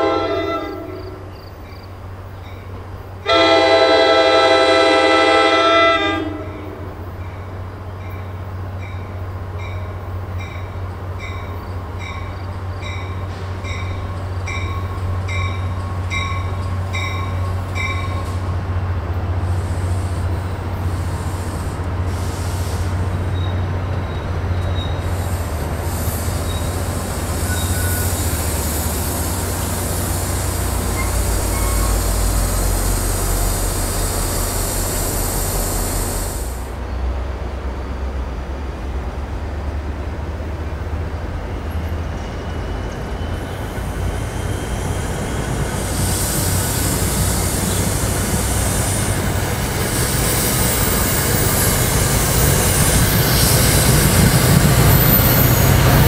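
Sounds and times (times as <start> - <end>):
train horn blast: 0.0 - 1.3, 3.2 - 7.0
train rumble and wheel noise: 0.0 - 56.0.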